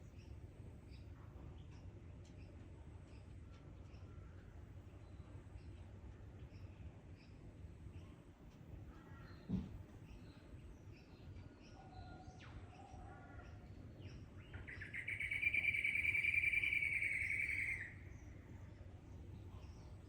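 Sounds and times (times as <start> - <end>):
faint bird chirps: 0.0 - 18.8
natural ambience: 0.0 - 20.0
bird trilling: 14.7 - 18.0.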